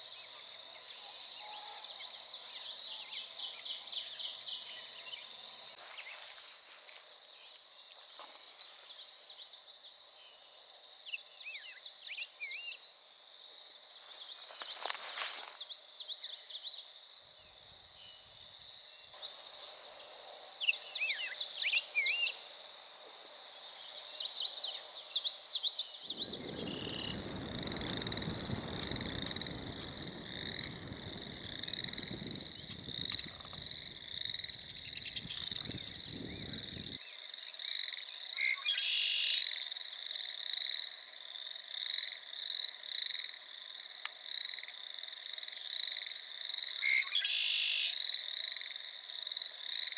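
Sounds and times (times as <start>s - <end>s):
bird song: 0.0s - 22.6s, 23.6s - 40.5s, 45.9s - 48.0s
frogs trilling: 18.5s - 49.9s
low rumbling noise: 26.1s - 37.0s.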